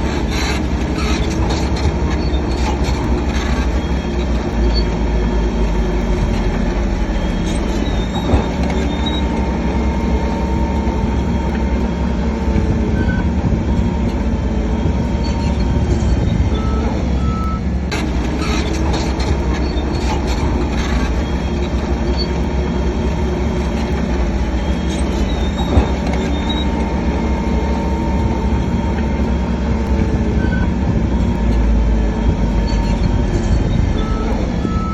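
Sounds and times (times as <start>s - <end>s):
bulldozer diesel engine running: 0.0s - 34.9s
metallic squealing tracks: 0.0s - 34.9s
reversing alarm beeping: 5.7s - 34.9s.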